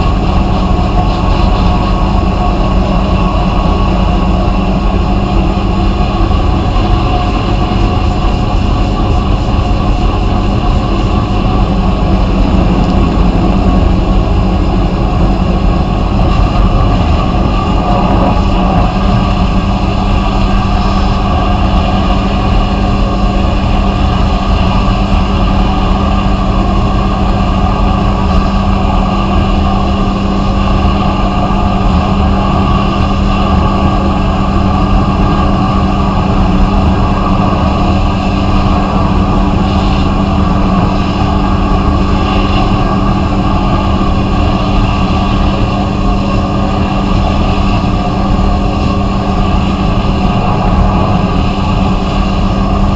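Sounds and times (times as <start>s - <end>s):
machine hum: 0.0s - 52.9s.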